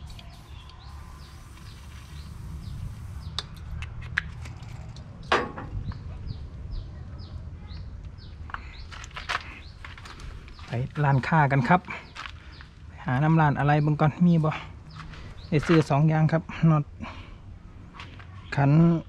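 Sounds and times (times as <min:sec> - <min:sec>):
small bird chirping: 0:00.0 - 0:03.8.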